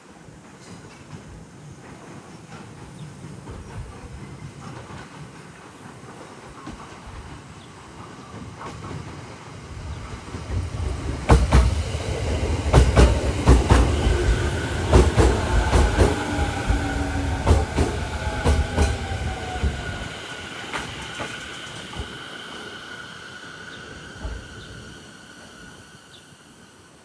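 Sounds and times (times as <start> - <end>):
train rumble: 0.0 - 27.0
train motor whine: 9.7 - 26.7
train wheels clacking over rail joints: 10.0 - 22.6.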